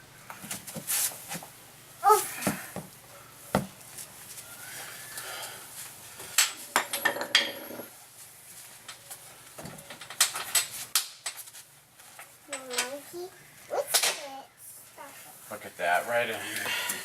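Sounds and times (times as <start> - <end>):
metal clinks and knocks: 6.4 - 7.9.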